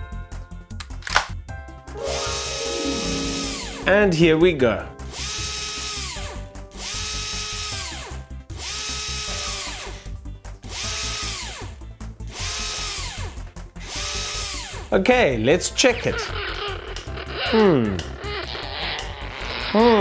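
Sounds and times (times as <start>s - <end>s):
background music with steady beat: 0.0s - 18.5s
drill whirring and spinning down: 2.0s - 3.8s, 5.0s - 15.0s.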